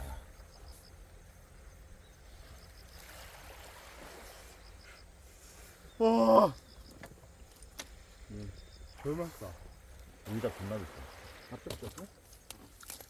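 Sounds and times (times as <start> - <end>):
insect chirping faintly: 0.0 - 13.0
sea water washing: 2.7 - 8.3, 8.9 - 13.0.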